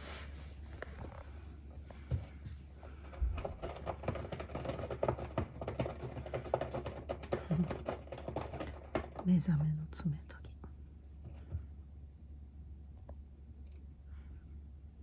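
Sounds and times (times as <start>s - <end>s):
cat scratching claws: 2.8s - 9.3s.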